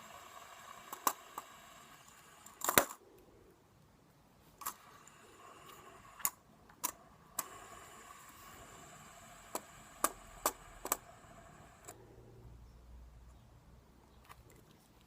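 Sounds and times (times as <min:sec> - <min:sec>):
pens and spinner clicking: 0:00.0 - 0:03.0, 0:04.6 - 0:12.0
faint steady hum: 0:00.0 - 0:15.0.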